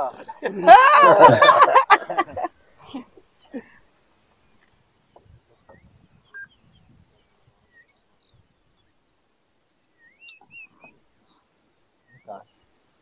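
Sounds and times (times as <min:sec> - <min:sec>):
faint bird chirps: 0:02.4 - 0:13.0.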